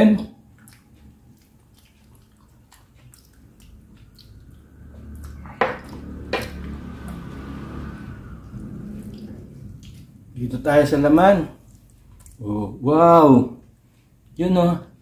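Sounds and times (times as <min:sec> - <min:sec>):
liquid dribbling: 0:00.4 - 0:07.5.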